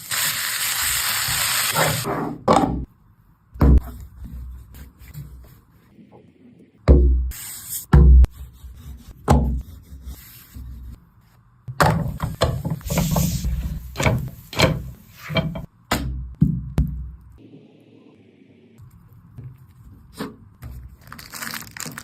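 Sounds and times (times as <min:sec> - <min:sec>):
cooking utensils knocking and scraping: 0:11.8 - 0:15.7.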